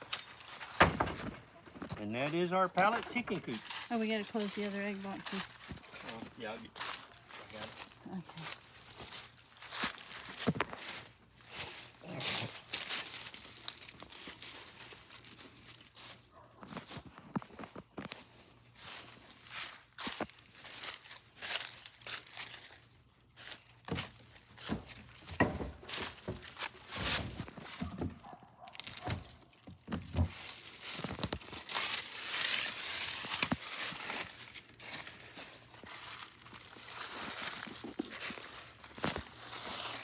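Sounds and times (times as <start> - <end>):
knocks of objects handled: 23.9 - 28.3
footsteps: 23.9 - 40.0.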